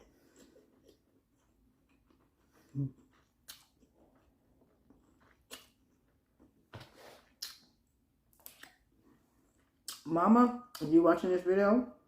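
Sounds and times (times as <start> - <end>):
wet chewing smacks: 0.1 - 6.2, 7.3 - 8.9.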